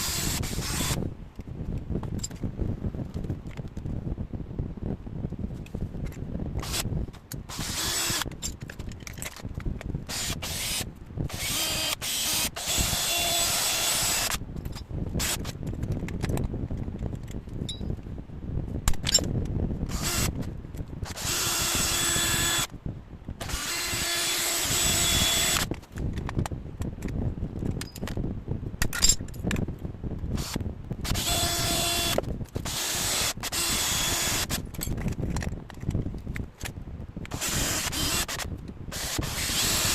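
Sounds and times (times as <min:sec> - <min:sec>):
electric power tool running: 0:00.0 - 0:01.0, 0:07.5 - 0:08.3, 0:10.1 - 0:14.4, 0:21.1 - 0:22.7, 0:23.4 - 0:25.7, 0:30.4 - 0:34.6, 0:37.3 - 0:39.9
handling rattles: 0:34.6 - 0:36.8.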